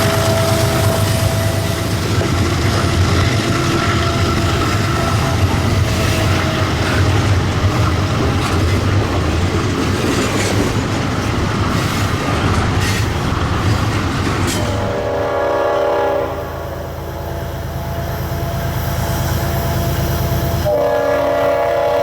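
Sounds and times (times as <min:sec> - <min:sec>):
wheels clicking over rails: 0:00.0 - 0:14.8
train engine rumble: 0:00.0 - 0:22.0.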